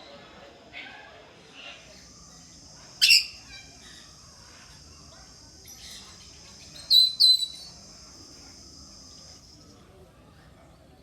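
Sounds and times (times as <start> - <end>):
parrots calling shrilly: 3.0 - 3.7.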